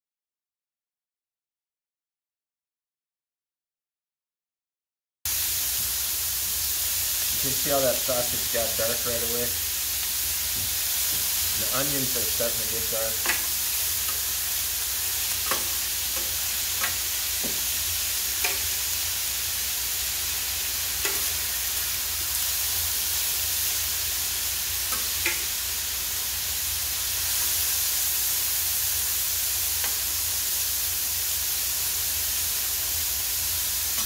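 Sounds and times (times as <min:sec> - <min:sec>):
sausage and onions sizzling: 0:05.3 - 0:34.0
metal spatula scraping griddle: 0:11.0 - 0:18.8.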